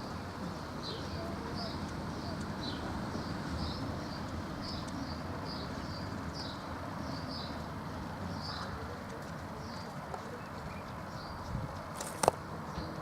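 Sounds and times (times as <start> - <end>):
small bird chirping: 0.8 - 7.7.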